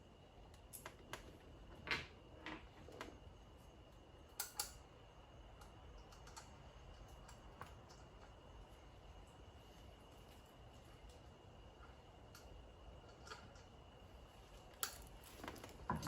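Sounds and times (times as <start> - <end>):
small metal hardware clicking: 4.4 - 4.8.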